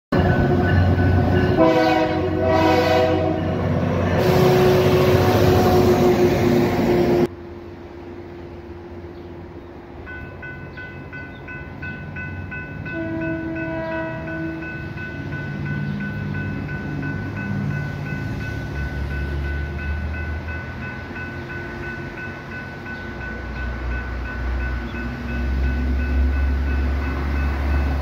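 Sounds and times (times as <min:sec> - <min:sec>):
diesel locomotive passing: 0:00.1 - 0:28.0
railroad crossing bell dinging: 0:00.1 - 0:28.0
train horn blasts: 0:00.2 - 0:07.3, 0:12.9 - 0:14.7.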